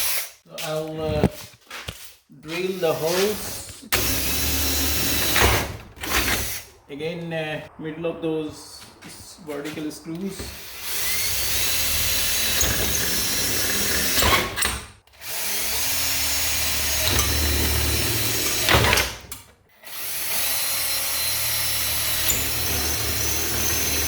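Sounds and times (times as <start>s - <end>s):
power drill running: 3.9s - 6.6s, 10.4s - 19.2s, 19.8s - 24.0s.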